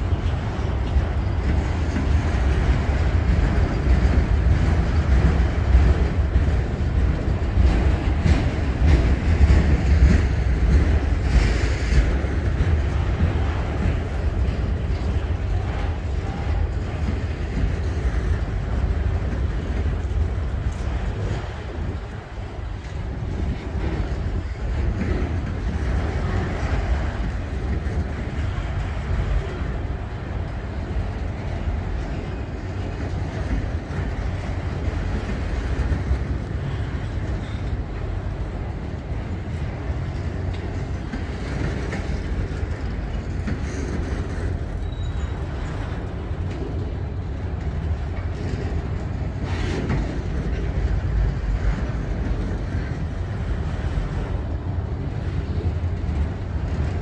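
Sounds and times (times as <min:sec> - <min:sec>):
steel wheels rolling on track: 0:00.0 - 0:57.0.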